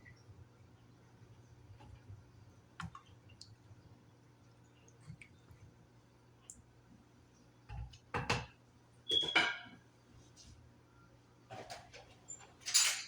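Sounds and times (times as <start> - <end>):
kitchen utensils clattering: 9.1 - 9.8, 11.5 - 13.0.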